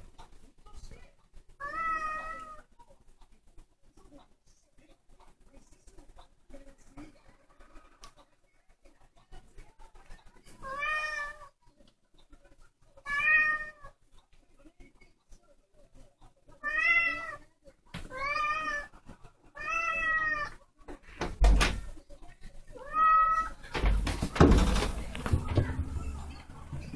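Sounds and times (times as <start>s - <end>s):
cat meowing: 1.6s - 2.6s, 13.1s - 13.9s, 19.6s - 20.6s, 22.8s - 23.6s
loud thumps: 23.7s - 26.2s.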